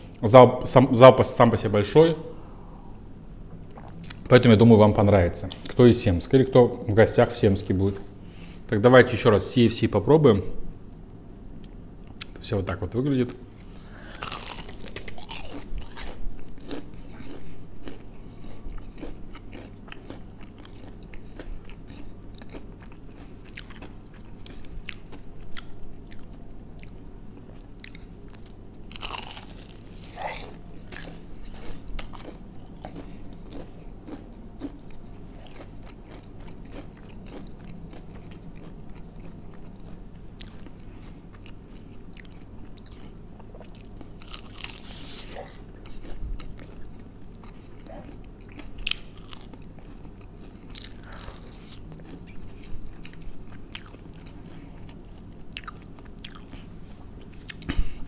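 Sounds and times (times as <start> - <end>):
crunching bites into fried chicken: 13.3 - 26.3, 27.8 - 34.8, 43.8 - 46.8, 48.1 - 52.2
chewing: 13.3 - 57.8.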